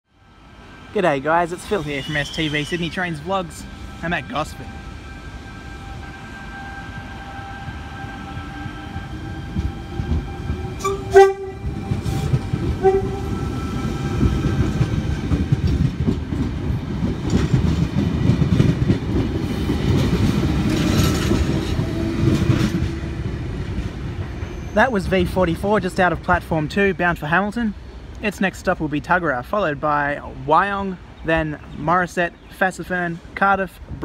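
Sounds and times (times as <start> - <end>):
train rumble and wheel clatter: 0.1 - 34.0
train horn toot: 1.7 - 14.8.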